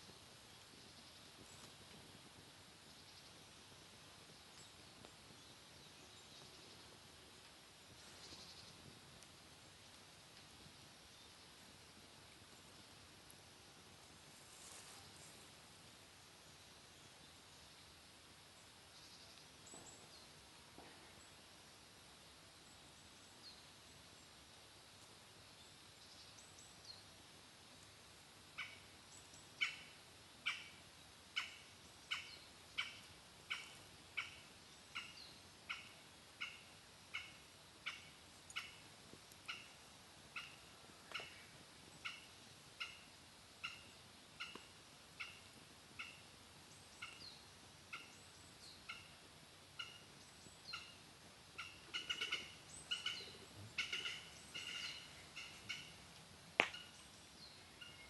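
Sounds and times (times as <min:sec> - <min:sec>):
bird calling: 0:49.8 - 0:51.0, 0:51.6 - 0:56.0, 0:56.6 - 0:58.0.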